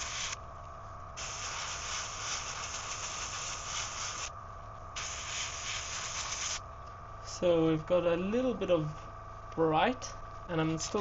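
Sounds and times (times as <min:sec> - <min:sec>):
airbrush spraying hiss: 0:00.0 - 0:00.4, 0:01.2 - 0:04.3, 0:05.0 - 0:06.6
steady low hum: 0:00.0 - 0:11.0.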